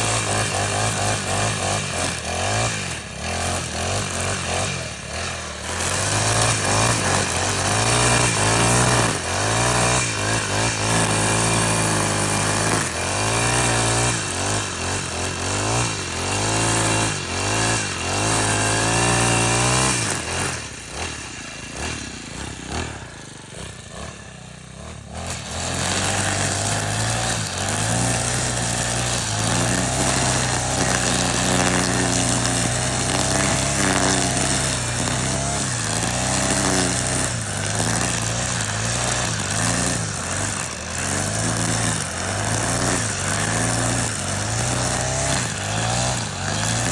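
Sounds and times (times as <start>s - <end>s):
brush cutter engine revving: 0.0s - 46.9s.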